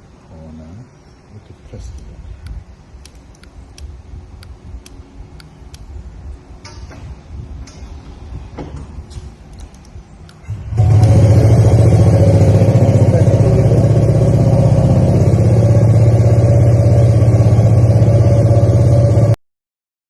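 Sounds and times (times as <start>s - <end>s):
scooter engine starting and idling: 10.4s - 19.4s.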